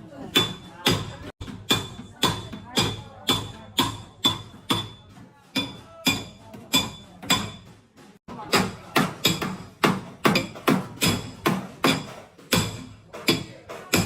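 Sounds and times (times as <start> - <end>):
hammer on sheet metal: 0.2 - 14.0.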